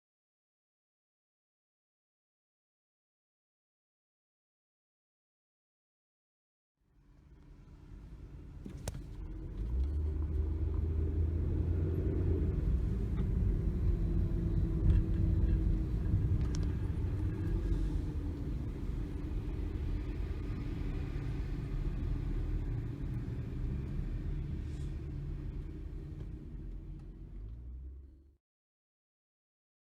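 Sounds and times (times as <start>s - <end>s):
fire truck diesel engine rumbling: 7.6s - 28.3s.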